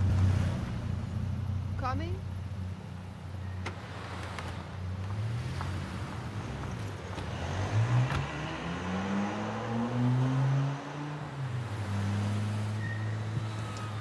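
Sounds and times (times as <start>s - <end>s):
car engine accelerating: 3.7s - 14.0s.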